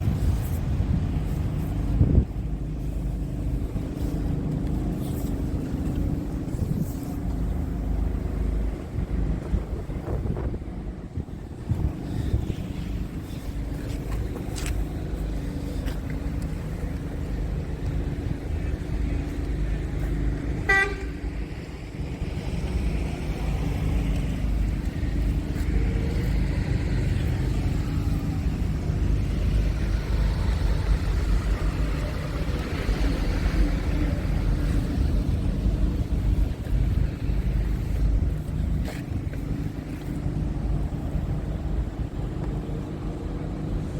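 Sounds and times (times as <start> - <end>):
truck diesel engine running: 0.0 - 43.9
truck horn blast: 20.6 - 21.3.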